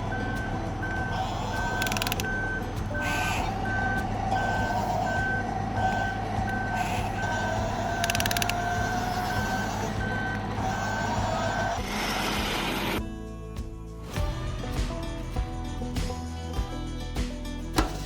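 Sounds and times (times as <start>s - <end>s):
motor whine: 0.0s - 13.0s
reversing alarm beeping: 0.0s - 13.0s.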